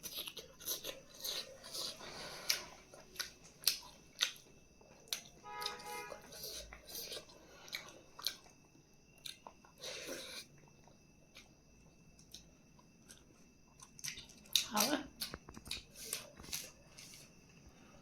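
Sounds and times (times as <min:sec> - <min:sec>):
person chewing crunchy food: 0:00.0 - 0:17.7.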